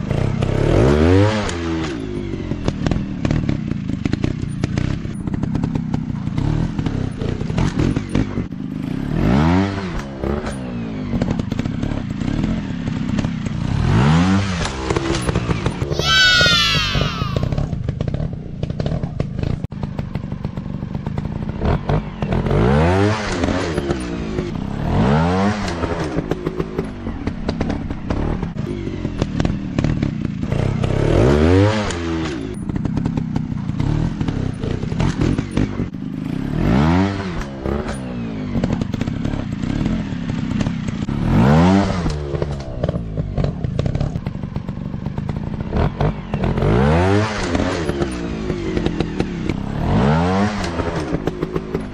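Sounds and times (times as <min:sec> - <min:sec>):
dirt bike engines revving: 0:15.9 - 0:17.8.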